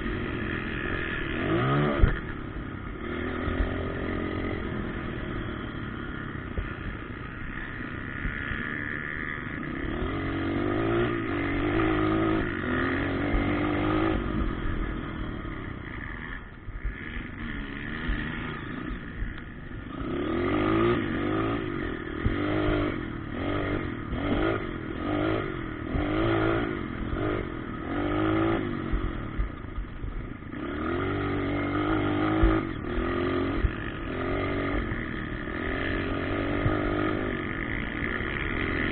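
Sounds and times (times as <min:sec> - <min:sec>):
motocross engines revving: 0:00.0 - 0:38.9.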